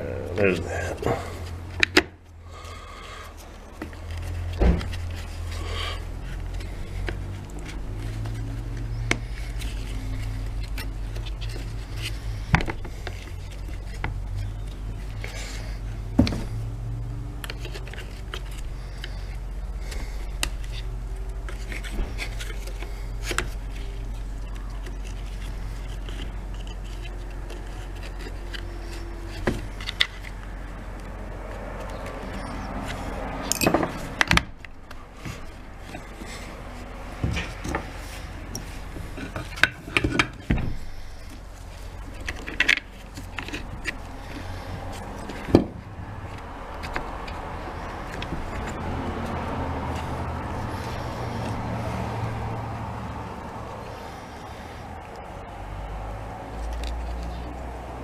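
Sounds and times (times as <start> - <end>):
clicks and knocks of tool parts: 31.8 - 50.1.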